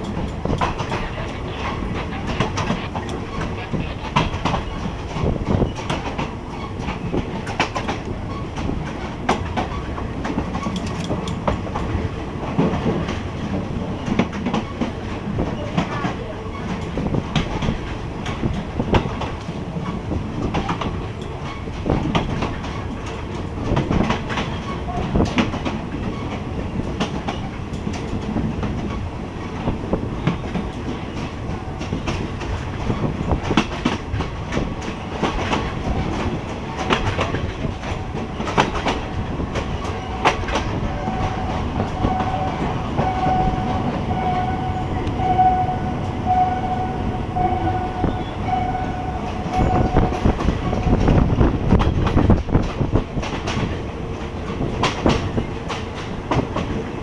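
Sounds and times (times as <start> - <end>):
train wheels clattering on rails: 0.0 - 57.0
steady high tone: 40.0 - 50.2.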